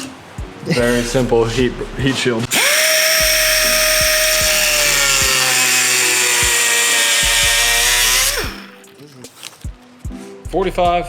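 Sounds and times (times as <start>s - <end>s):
electric rotary tool cutting metal: 2.5s - 8.8s.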